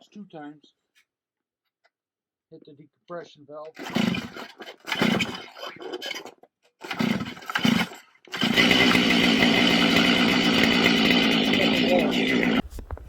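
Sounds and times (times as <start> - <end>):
starter cord pulls: 3.7 - 13.0
chainsaw engine running: 3.8 - 6.2, 6.8 - 12.7.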